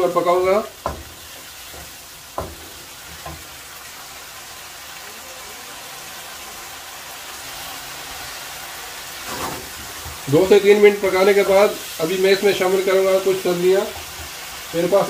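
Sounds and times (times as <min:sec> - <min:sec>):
chicken sizzling in a wok: 0:00.0 - 0:15.0
wooden spatula knocking pan: 0:00.3 - 0:03.6.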